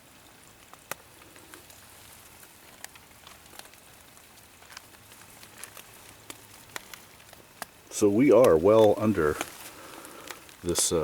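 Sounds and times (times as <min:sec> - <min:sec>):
faint hiss of rain: 0:00.0 - 0:11.0
raindrops tapping on a tarp: 0:00.0 - 0:11.0.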